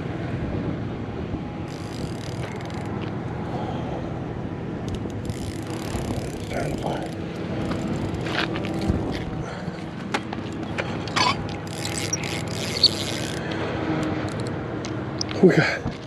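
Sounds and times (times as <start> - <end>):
fishing reel ratchet clicking: 1.7 - 3.0, 4.9 - 8.4, 11.6 - 13.5, 14.2 - 14.5.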